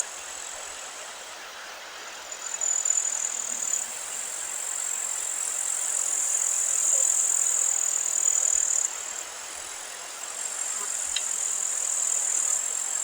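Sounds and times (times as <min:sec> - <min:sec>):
crickets buzzing: 0:00.0 - 0:13.0
open-air hiss: 0:00.0 - 0:13.0.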